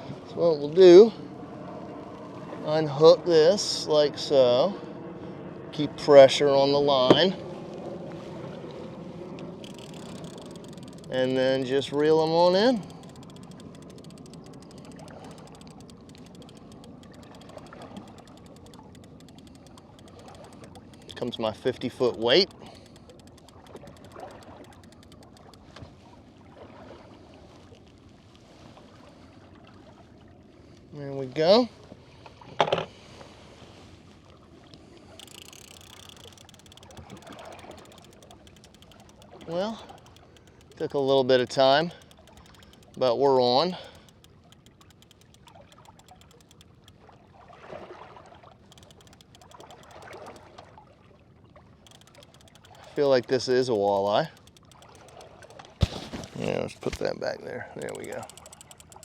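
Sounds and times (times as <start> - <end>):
water and boat noise: 0.0 - 59.0
fishing reel clicking: 9.4 - 25.8, 35.2 - 47.1, 48.6 - 50.7, 51.8 - 57.1, 57.7 - 59.0.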